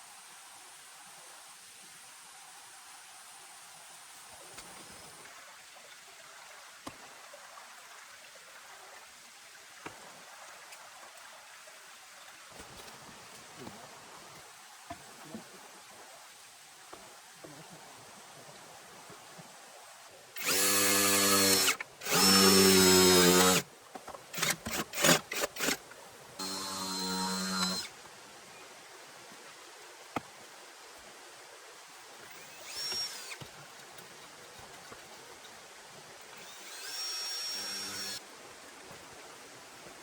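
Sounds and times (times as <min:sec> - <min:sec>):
power drill motor whining: 0:20.4 - 0:23.6, 0:24.4 - 0:25.8, 0:26.4 - 0:27.9, 0:32.3 - 0:33.4, 0:36.3 - 0:38.2.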